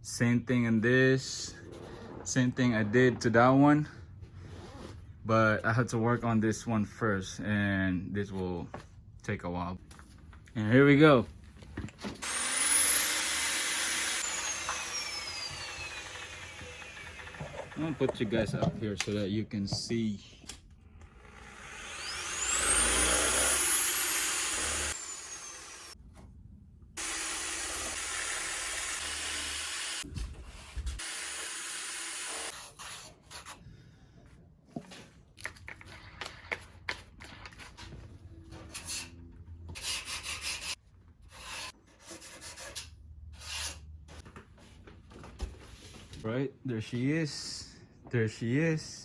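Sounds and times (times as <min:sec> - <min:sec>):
power sander whining: 0:12.2 - 0:18.7, 0:21.0 - 0:26.0, 0:27.0 - 0:30.0, 0:31.0 - 0:32.5.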